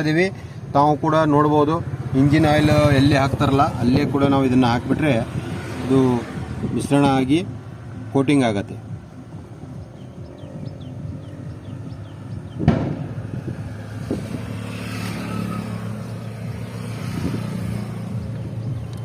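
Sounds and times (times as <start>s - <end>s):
sharp knock: 12.6s - 13.2s.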